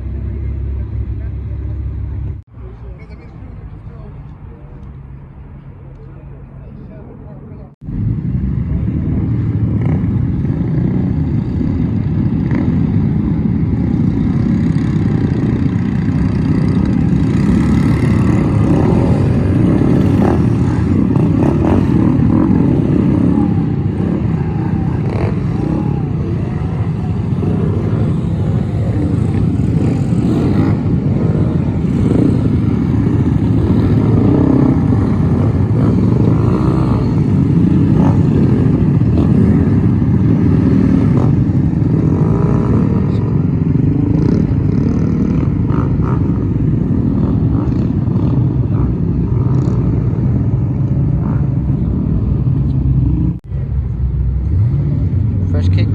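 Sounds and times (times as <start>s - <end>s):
car engines with low exhaust: 0.0s - 55.9s.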